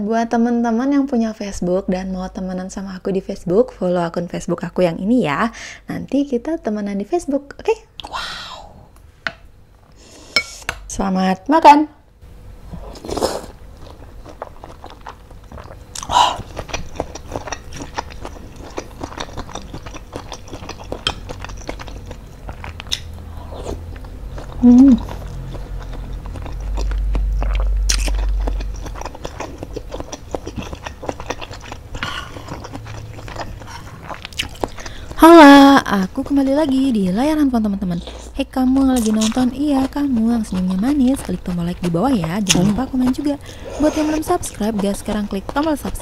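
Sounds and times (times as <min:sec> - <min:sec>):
wet chewing mouth sounds: 0:12.8 - 0:46.0
person humming: 0:24.6 - 0:25.1, 0:42.4 - 0:42.9.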